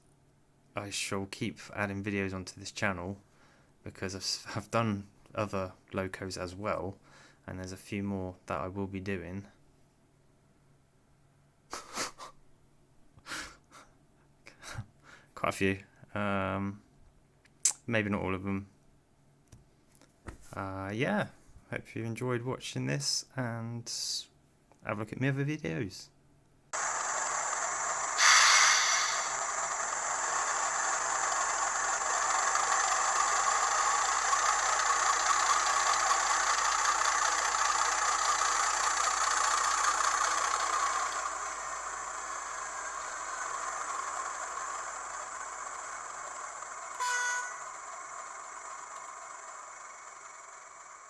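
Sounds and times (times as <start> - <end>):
diesel locomotive engine sound: 26.8 - 51.0
locomotive horn blast: 47.0 - 47.7.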